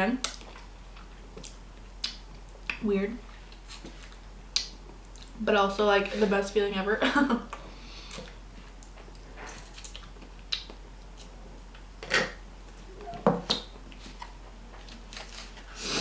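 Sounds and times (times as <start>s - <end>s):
faint steady hum: 0.0s - 16.0s
chewing and mouth clicks: 0.4s - 2.8s, 8.1s - 11.3s.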